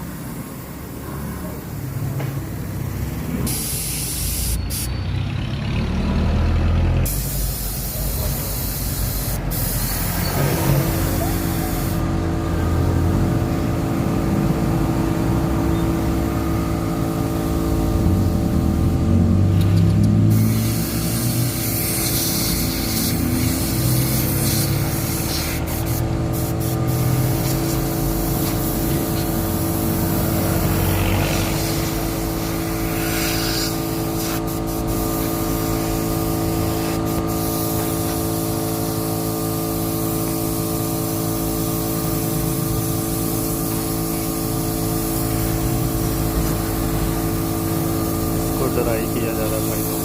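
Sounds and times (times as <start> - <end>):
paint spray gun hissing: 3.5 - 5.0, 7.1 - 12.1, 19.6 - 50.0.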